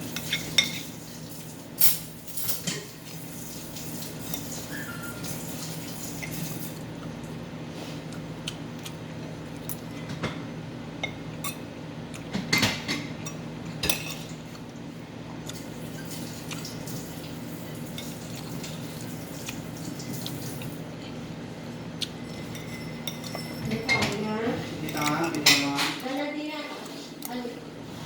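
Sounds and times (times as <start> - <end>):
cutlery clinking on a plate: 22.2 - 24.3, 24.9 - 26.0.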